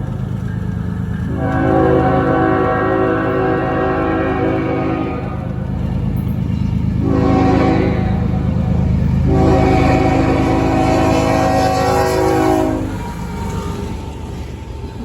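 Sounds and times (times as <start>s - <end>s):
train rumbling: 0.0s - 15.0s
locomotive air horn blasts: 1.3s - 6.0s, 7.0s - 13.2s.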